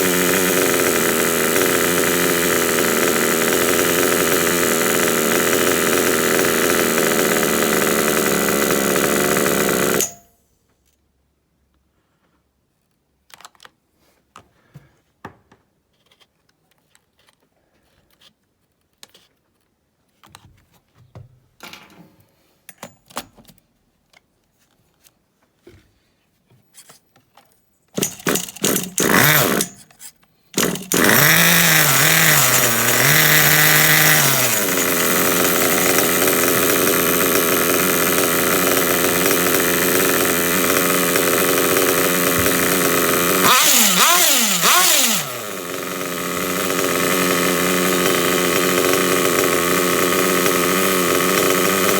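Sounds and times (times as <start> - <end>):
small nitro engine running: 0.0 - 10.2, 28.0 - 29.8, 30.6 - 51.9
starter box spinning engine: 0.0 - 10.2, 28.0 - 29.8, 30.6 - 51.9.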